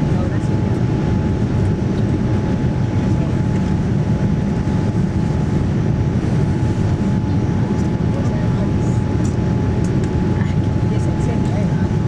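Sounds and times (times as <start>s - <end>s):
jet engines roaring in cabin: 0.0s - 12.0s.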